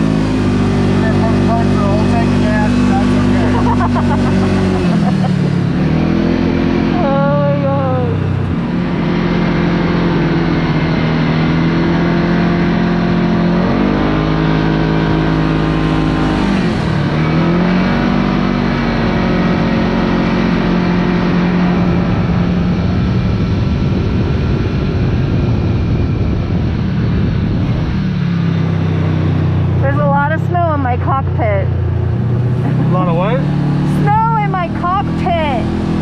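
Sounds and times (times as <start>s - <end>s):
vehicle engine revving: 0.0s - 36.0s.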